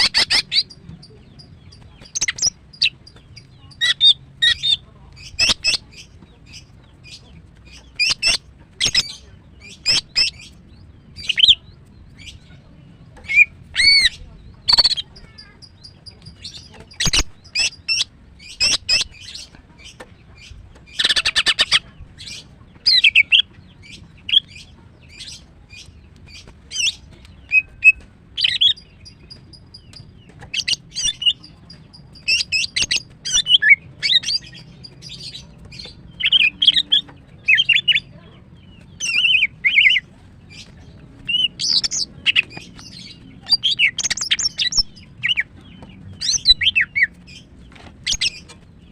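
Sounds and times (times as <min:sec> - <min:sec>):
bird chirps whistles and trills: 0:41.3 - 0:45.5.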